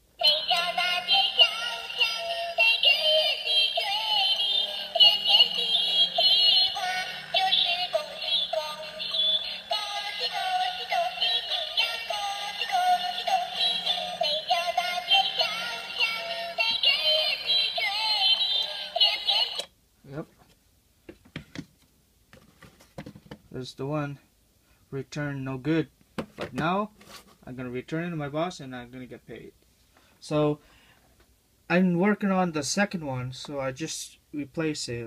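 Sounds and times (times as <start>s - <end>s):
tinny electronic jingle with singing: 0.2s - 19.7s.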